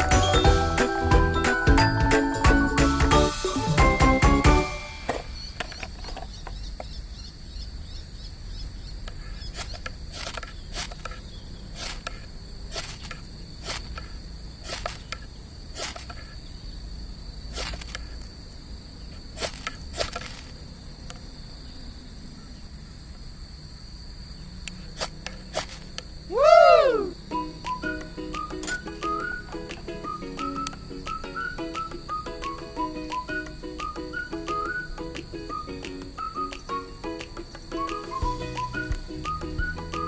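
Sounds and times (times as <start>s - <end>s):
crickets chirping: 0.0s - 40.0s.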